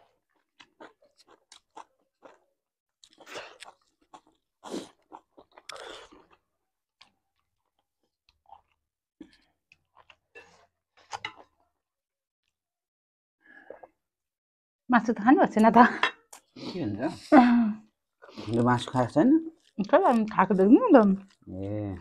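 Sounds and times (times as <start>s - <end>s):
close chewing of food: 0.0s - 11.8s, 17.9s - 22.0s.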